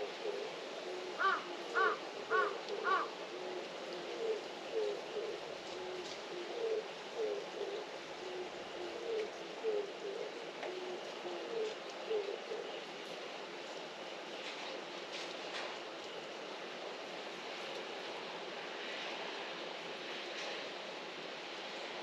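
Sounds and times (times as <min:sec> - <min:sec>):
dove cooing: 0:00.0 - 0:13.2
rain hiss: 0:00.0 - 0:22.0
crow cawing: 0:01.2 - 0:03.2.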